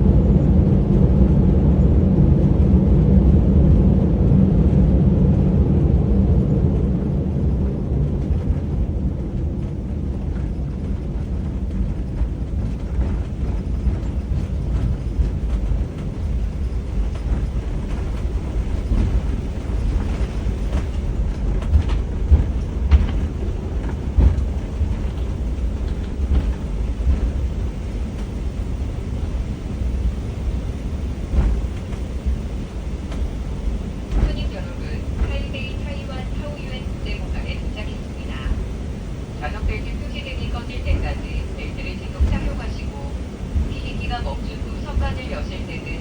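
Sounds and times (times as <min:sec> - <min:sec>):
aircraft cabin rumble: 0:00.0 - 0:46.0
knocks and bumps: 0:19.9 - 0:27.4.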